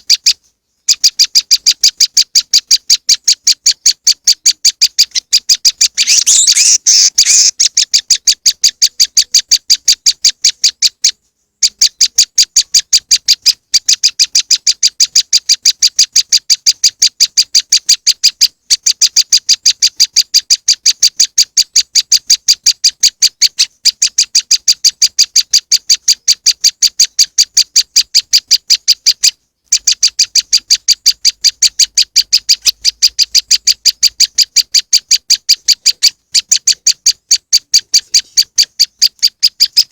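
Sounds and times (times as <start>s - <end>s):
bird calling sharp chip notes: 1.0s - 9.9s.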